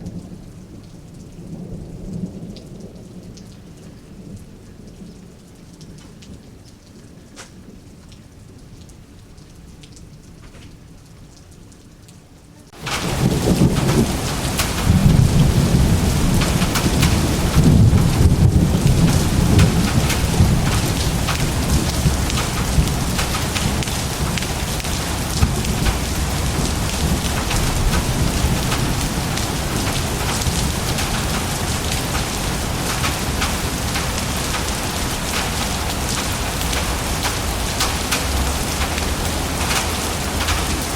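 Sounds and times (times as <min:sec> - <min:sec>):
heavy steady rain: 0:00.0 - 0:40.9
thunder rumbling: 0:12.7 - 0:40.9.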